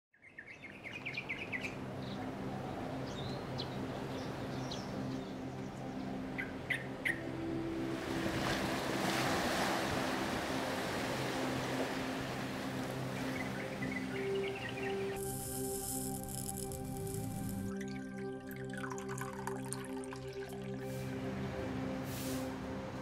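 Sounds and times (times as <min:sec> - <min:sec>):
birds chirping: 0:00.2 - 0:07.4, 0:13.0 - 0:19.0
low steady drone: 0:10.2 - 0:18.4, 0:20.6 - 0:23.0.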